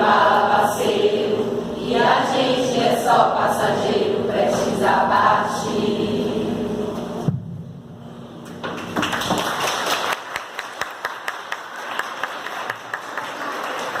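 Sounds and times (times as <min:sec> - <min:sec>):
audience clapping: 0:08.7 - 0:14.0.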